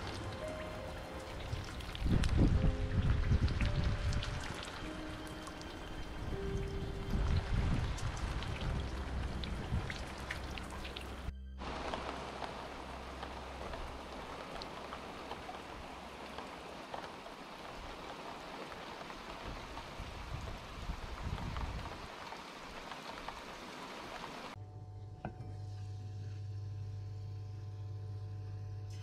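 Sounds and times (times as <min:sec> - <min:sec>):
rain falling: 0:00.0 - 0:24.6
electrical hum: 0:24.6 - 0:29.0.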